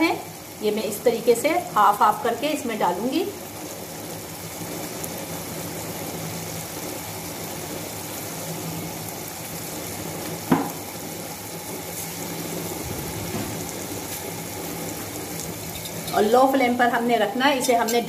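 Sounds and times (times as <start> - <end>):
meat sizzling in a pan: 0.0 - 18.0
loud knock: 10.5 - 10.8.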